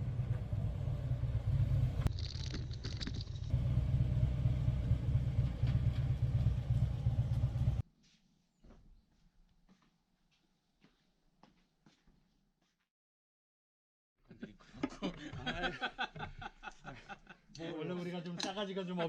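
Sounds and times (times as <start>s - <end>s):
motorcycle engine rumbling: 0.0s - 7.8s.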